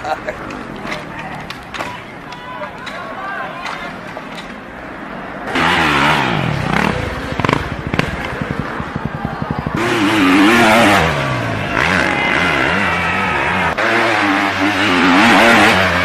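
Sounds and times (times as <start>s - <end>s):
dirt bike engine revving: 5.5s - 16.0s.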